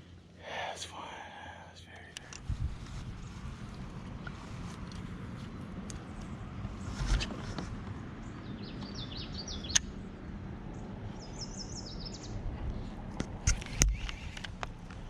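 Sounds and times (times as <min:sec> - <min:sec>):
steady low rumble: 0:00.0 - 0:09.0
songbird calling: 0:08.2 - 0:09.9, 0:10.7 - 0:12.4
sharp clicks and knocks: 0:13.1 - 0:15.0.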